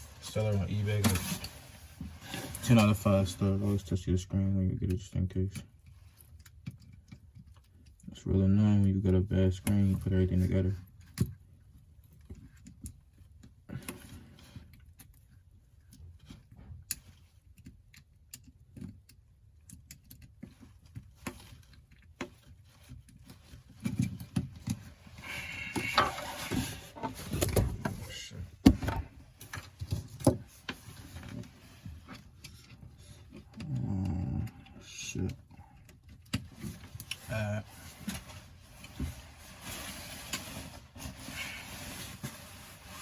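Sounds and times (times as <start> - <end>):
small parts clicking and tapping: 4.9 - 8.1, 14.6 - 24.8
rustling: 20.4 - 33.4, 36.0 - 43.0.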